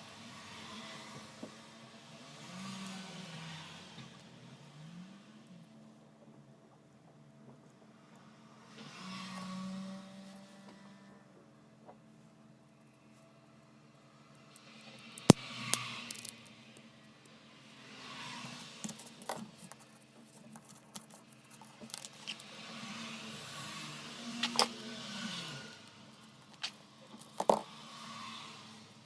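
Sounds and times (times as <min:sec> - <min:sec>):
metal parts clinking and scraping: 0:16.0 - 0:16.4, 0:20.5 - 0:22.6, 0:24.4 - 0:24.7.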